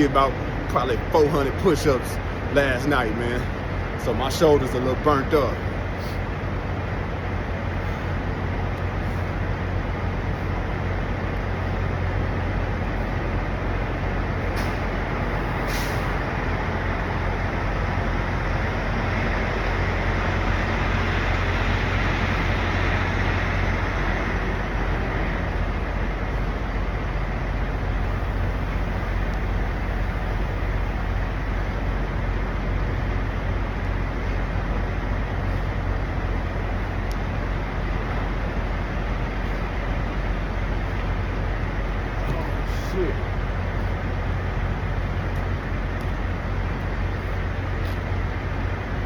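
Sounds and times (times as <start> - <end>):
diesel truck engines idling: 0.0 - 49.0
short air hisses: 15.6 - 16.2.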